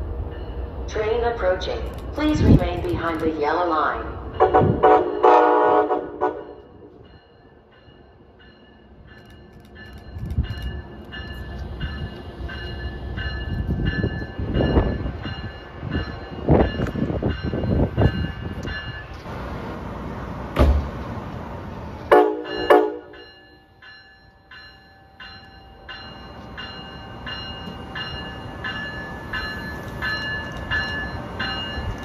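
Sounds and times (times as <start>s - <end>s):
train rumbling: 0.0s - 32.0s
train horn chord: 4.4s - 6.8s, 22.1s - 23.2s.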